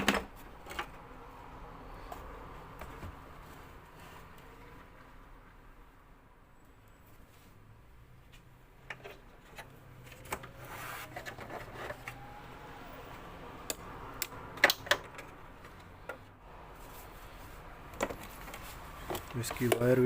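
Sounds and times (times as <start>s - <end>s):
plastic parts clicking and knocking: 0.0s - 1.0s, 13.6s - 16.3s, 17.9s - 20.0s
light rubbing of plastic parts: 8.3s - 12.4s, 15.0s - 20.0s.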